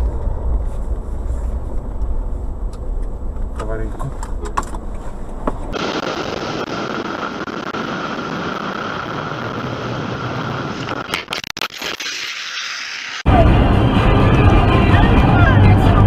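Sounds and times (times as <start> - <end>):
road rumble inside car: 0.0 - 5.8, 13.3 - 16.0
road and wind noise: 0.0 - 11.3, 13.0 - 16.0.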